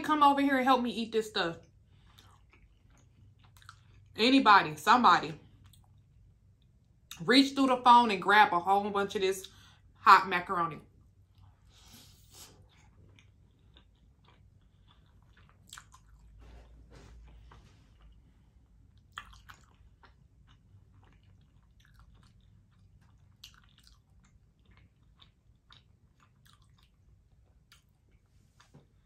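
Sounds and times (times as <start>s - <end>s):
chewing soft food: 1.6s - 4.2s, 5.4s - 7.2s, 11.0s - 29.0s.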